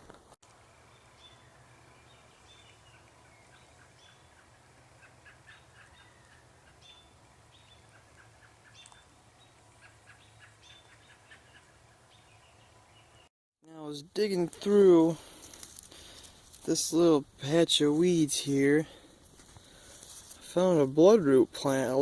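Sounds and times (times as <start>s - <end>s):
low steady hum: 0.5s - 10.6s
small birds chirping: 0.5s - 13.3s.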